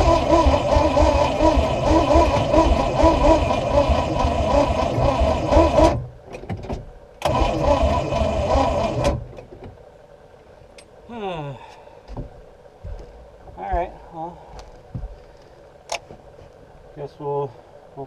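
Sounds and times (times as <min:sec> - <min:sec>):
boat engine cranking: 0:00.0 - 0:06.1, 0:07.2 - 0:09.3.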